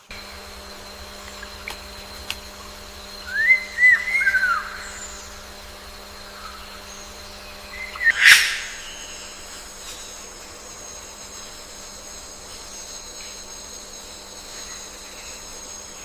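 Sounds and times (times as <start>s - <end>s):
harsh bird call: 3.3s - 5.3s, 7.7s - 9.5s
bird whistling short notes: 7.8s - 9.2s.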